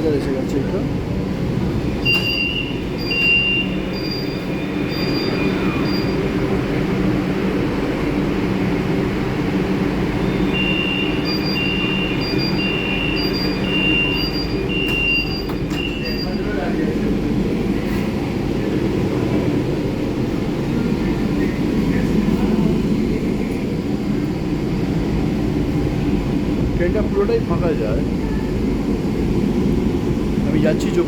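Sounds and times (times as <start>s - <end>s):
low hum from train car: 0.0s - 31.0s
two-tone door warning beeps: 2.0s - 6.2s, 10.2s - 16.5s.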